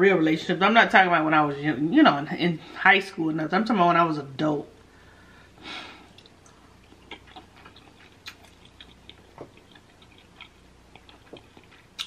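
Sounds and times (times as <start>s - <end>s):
short breath: 4.9s - 6.1s
wet chewing mouth clicks: 6.1s - 12.0s.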